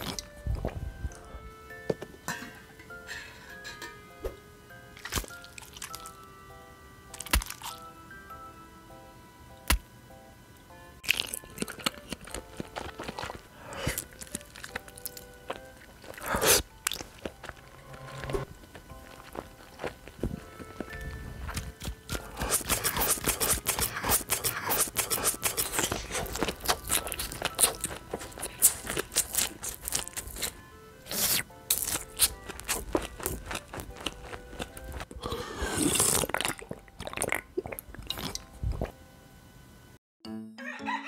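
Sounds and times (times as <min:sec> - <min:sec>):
crunching and chewing: 0:00.0 - 0:01.3, 0:05.0 - 0:06.3, 0:07.1 - 0:07.9, 0:11.0 - 0:39.0
background music: 0:00.0 - 0:37.5, 0:40.2 - 0:41.0.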